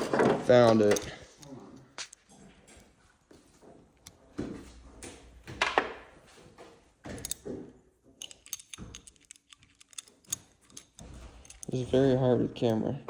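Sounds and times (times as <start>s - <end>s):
metal hand tools clinking: 8.2s - 12.8s.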